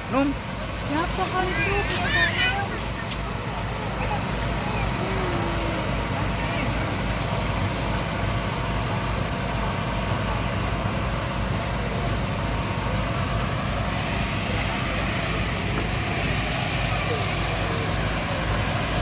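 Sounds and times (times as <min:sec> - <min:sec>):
speedboat engines rumbling: 0:00.0 - 0:19.0.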